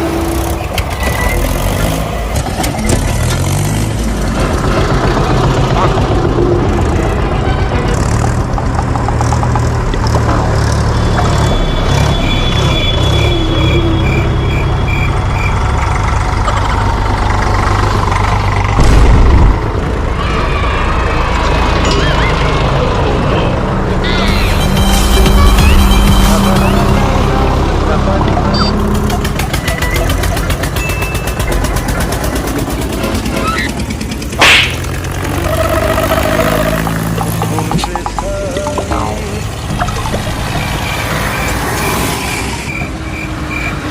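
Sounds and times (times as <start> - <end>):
short high beeps: 28.5 - 28.8.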